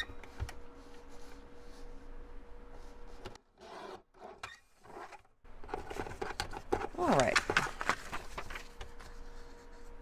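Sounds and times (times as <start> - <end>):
paper rustling: 5.7 - 9.5.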